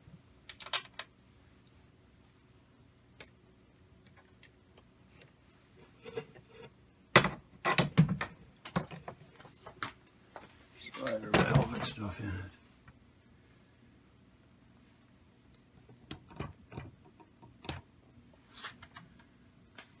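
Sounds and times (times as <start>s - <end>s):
tools knocking and clattering: 11.0s - 12.0s.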